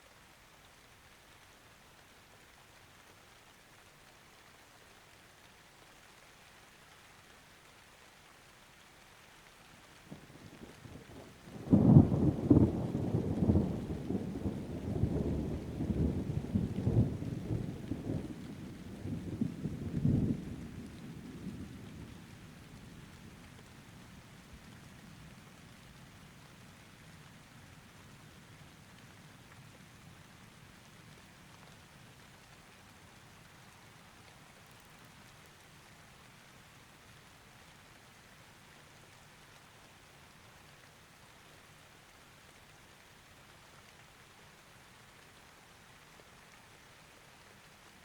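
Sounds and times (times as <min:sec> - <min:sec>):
light rain: 0:00.0 - 0:48.0
thunderclap: 0:11.6 - 0:21.8.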